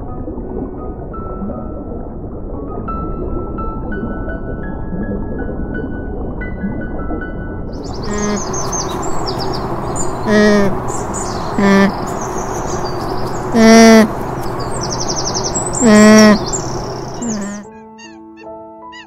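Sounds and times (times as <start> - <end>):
birds chirping: 7.8 - 17.7
llama calling: 8.0 - 17.7.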